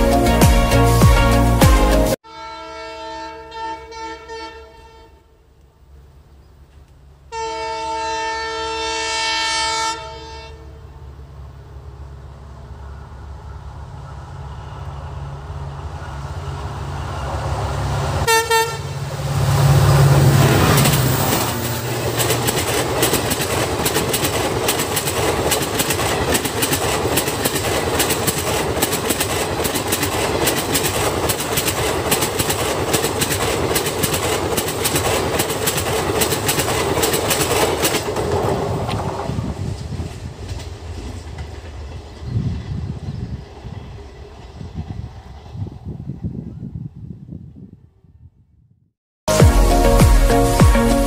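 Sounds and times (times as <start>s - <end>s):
train horn blast: 0.0s - 5.5s, 7.3s - 11.1s, 18.2s - 22.0s
diesel locomotive engine rumble: 3.2s - 48.3s
train wheels clattering over rail joints: 20.1s - 42.1s.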